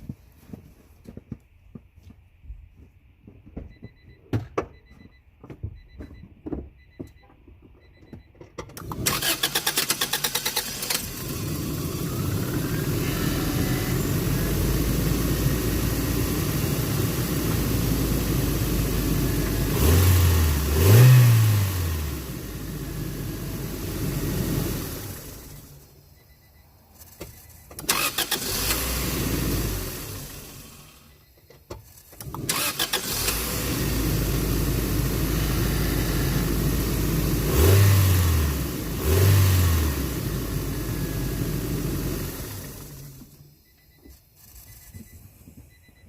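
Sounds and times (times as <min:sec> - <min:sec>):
faint beeps: 0:03.6 - 0:08.6, 0:25.4 - 0:27.8, 0:30.8 - 0:31.7, 0:42.9 - 0:46.0
car starter cranking: 0:08.7 - 0:14.7, 0:27.0 - 0:31.0, 0:31.8 - 0:35.3
car engine running: 0:08.8 - 0:25.9, 0:32.2 - 0:43.8.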